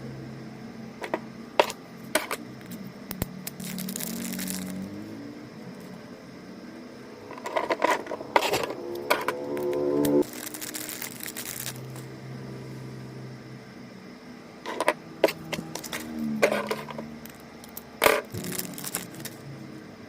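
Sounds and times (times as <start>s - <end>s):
packaging crackling: 3.1s - 4.9s, 10.2s - 12.0s, 15.6s - 19.4s.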